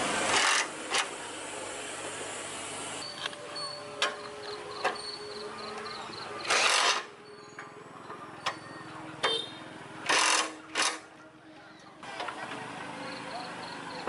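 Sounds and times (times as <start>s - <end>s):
sharp mechanical clicks: 6.4s - 7.1s, 10.1s - 11.0s.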